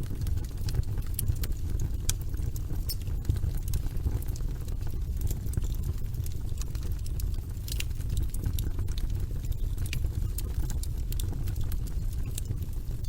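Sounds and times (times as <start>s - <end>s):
burning logs crackling and popping: 0.0s - 13.0s
flames rumbling: 0.0s - 13.0s.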